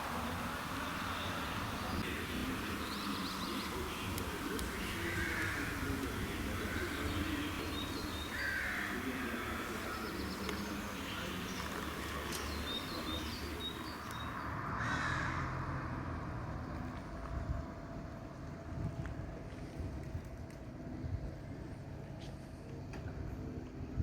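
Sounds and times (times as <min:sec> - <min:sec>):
bird calls: 0:00.0 - 0:15.3.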